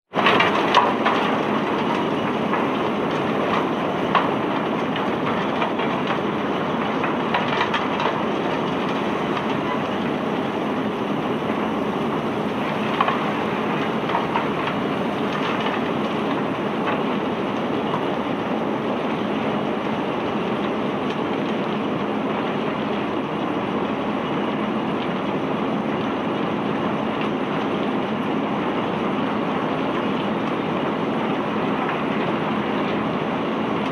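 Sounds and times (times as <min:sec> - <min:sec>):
cargo machinery noise: 0:00.2 - 0:23.0.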